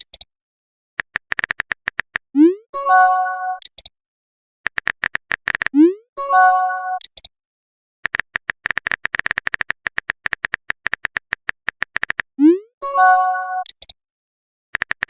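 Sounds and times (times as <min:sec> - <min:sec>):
phone keyboard typing clicks: 0:01.0 - 0:02.3, 0:04.7 - 0:05.8, 0:07.0 - 0:07.3, 0:08.0 - 0:12.3, 0:13.6 - 0:14.0, 0:14.8 - 0:15.0.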